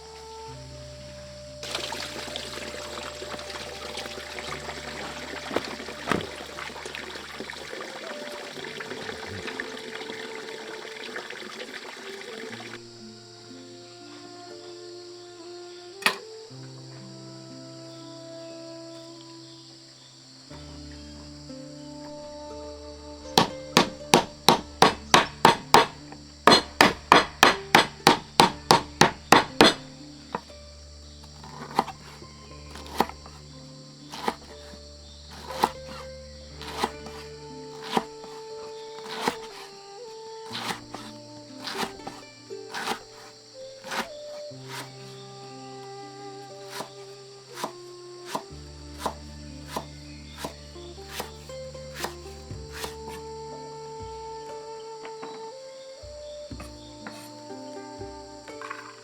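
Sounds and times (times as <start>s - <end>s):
background music: 0.0s - 59.0s
water pouring and splashing: 1.6s - 13.0s, 31.2s - 33.4s, 34.1s - 45.1s
cleaver chopping on wooden board: 3.2s - 7.5s, 23.4s - 30.5s, 31.4s - 33.4s, 34.1s - 39.8s, 40.5s - 45.0s, 46.7s - 53.3s
sharp knocks: 23.4s - 29.9s.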